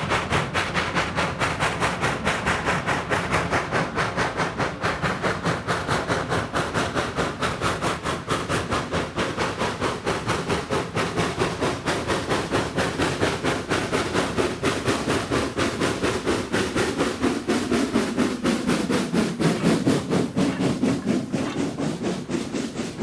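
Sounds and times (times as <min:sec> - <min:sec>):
steam locomotive chuffing: 0:00.0 - 0:23.0.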